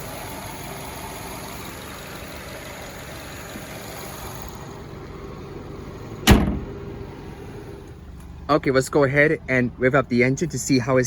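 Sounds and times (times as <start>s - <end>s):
car engine idling: 0.0s - 11.0s
car door slam: 6.2s - 6.9s.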